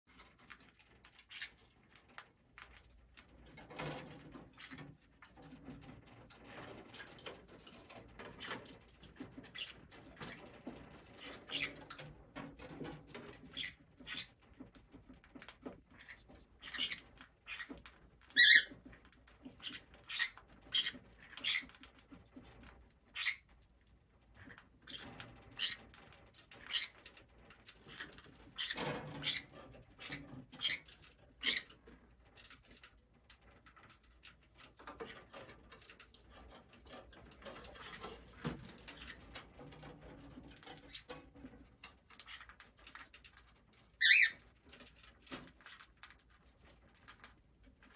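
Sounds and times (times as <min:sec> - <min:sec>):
parrot beak crunching food: 0:00.1 - 0:05.8, 0:24.3 - 0:47.9
parrot chirp: 0:00.5 - 0:02.8, 0:09.4 - 0:10.4, 0:11.1 - 0:12.0, 0:13.3 - 0:14.4, 0:15.4 - 0:22.0, 0:22.6 - 0:23.5, 0:24.4 - 0:31.8, 0:40.4 - 0:41.2, 0:42.1 - 0:44.8.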